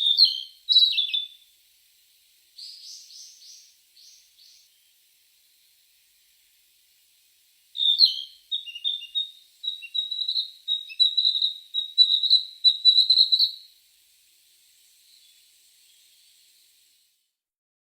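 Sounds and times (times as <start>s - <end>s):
songbird singing: 0.0s - 1.5s, 2.5s - 6.4s, 7.8s - 13.8s, 14.6s - 16.9s
faint hiss: 0.0s - 17.6s.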